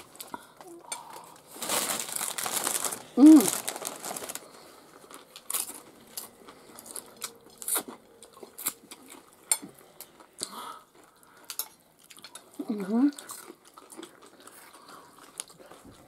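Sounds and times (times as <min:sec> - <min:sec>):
chewing crunchy chips: 0:00.0 - 0:16.0.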